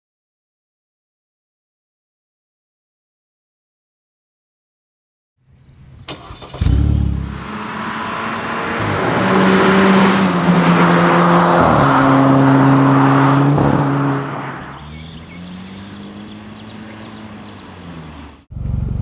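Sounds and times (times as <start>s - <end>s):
car engine revving: 6.0s - 19.0s
loud exhaust burst: 6.1s - 15.0s.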